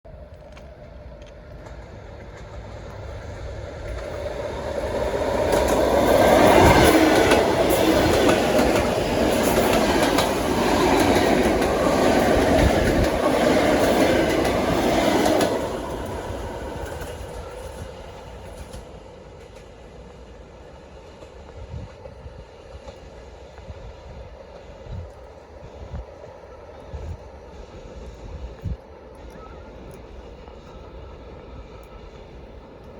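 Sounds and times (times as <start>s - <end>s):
train passing: 0.1s - 32.9s
wheels clicking over rail joints: 0.2s - 20.2s.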